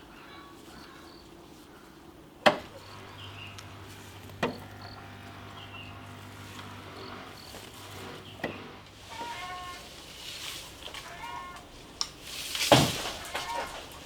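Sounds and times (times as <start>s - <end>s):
insects chirping: 2.5s - 14.0s.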